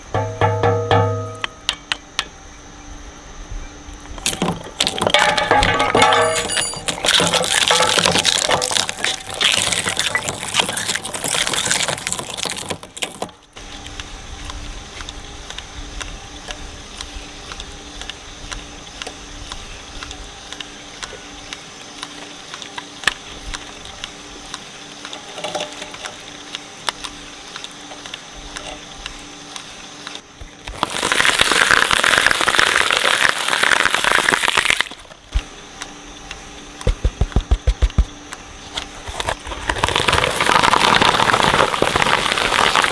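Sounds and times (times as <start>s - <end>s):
shredder motor humming empty: 4.1s - 42.9s
shredder crunching and grinding: 4.2s - 14.0s, 25.0s - 42.9s
rapid low thumps: 36.8s - 38.2s.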